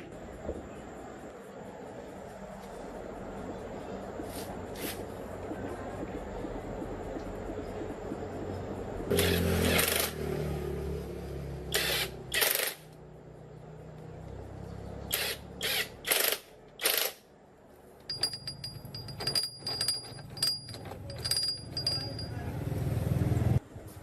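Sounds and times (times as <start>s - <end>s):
light metallic clinks and taps: 18.0s - 22.7s.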